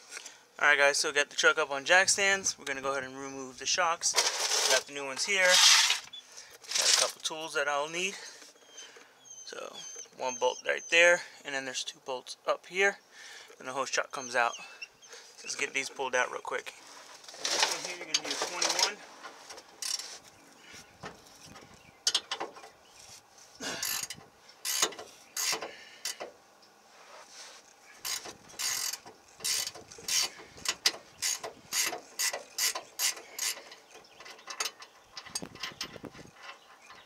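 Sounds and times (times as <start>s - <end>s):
ratchet wrench clicking: 23.8s - 26.2s, 28.0s - 33.6s.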